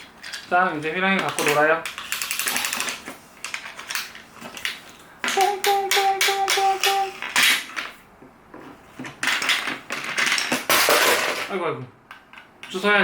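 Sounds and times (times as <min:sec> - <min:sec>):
plastic toy pieces clattering: 0:00.2 - 0:00.5, 0:01.2 - 0:07.9, 0:09.2 - 0:11.6.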